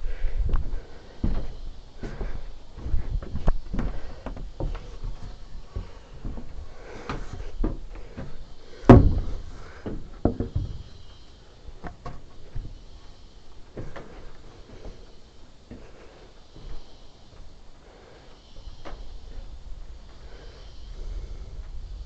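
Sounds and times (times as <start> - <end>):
wooden knocks and clunks: 0.6 - 12.8
loud thud: 8.9 - 9.5.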